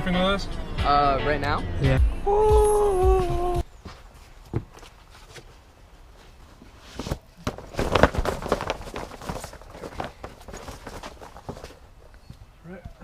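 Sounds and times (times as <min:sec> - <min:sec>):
footsteps: 0:03.2 - 0:13.0
rustling: 0:03.7 - 0:12.5.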